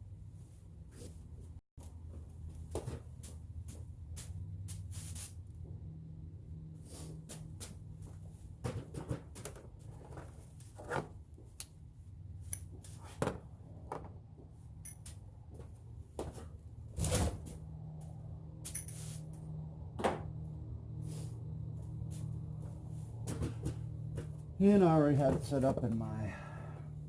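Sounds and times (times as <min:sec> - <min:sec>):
steady low hum: 0:14.8 - 0:27.0.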